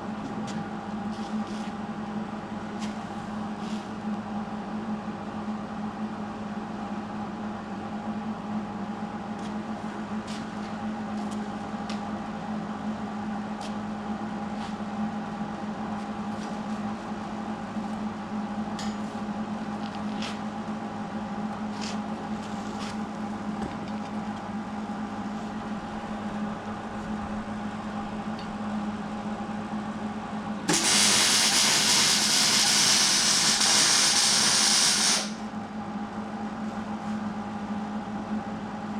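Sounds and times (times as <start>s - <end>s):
mechanical hum: 0.0s - 38.9s
compressed air hiss: 30.7s - 35.4s.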